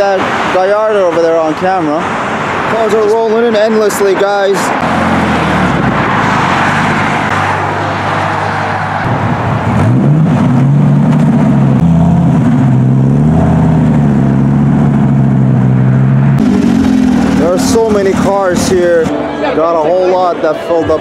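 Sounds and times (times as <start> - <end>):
road traffic noise: 0.0 - 21.0
car driving past: 4.8 - 10.7
car engine rumbling at low revs: 9.1 - 19.1.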